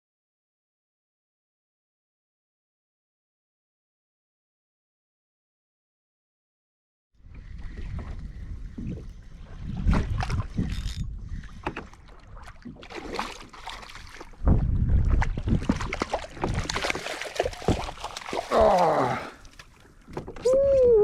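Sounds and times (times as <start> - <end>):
water sounds: 7.2 - 21.0
knocks and thuds on kayak: 14.4 - 18.5.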